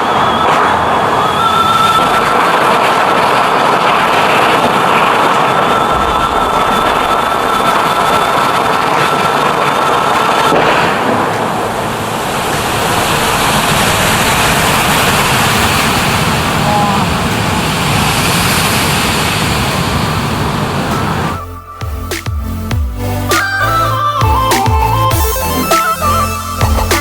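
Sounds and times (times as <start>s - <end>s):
fountain water spraying and falling: 0.0s - 21.4s.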